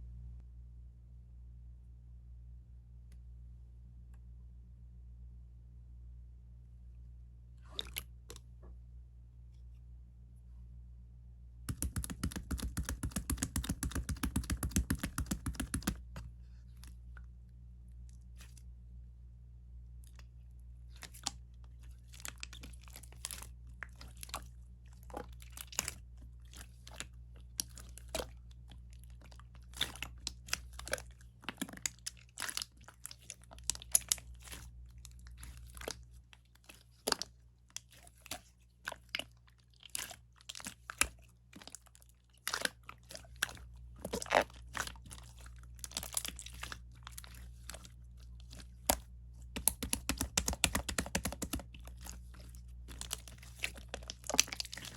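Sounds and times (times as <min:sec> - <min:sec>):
low steady hum: 0:00.0 - 0:54.9
slime clicking and popping: 0:11.7 - 0:16.0, 0:48.8 - 0:51.8.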